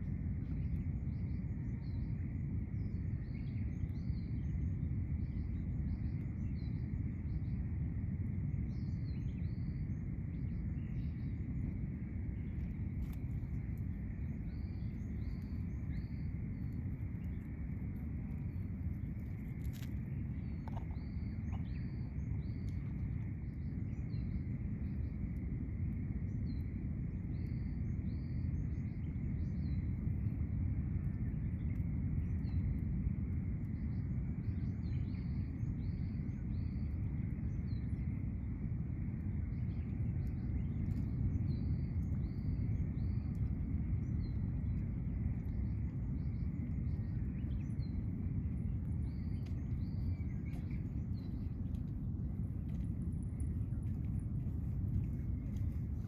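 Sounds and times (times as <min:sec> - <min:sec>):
steady low rumble: 0:00.0 - 0:56.0
small birds chirping: 0:08.5 - 0:30.4, 0:31.0 - 0:56.0.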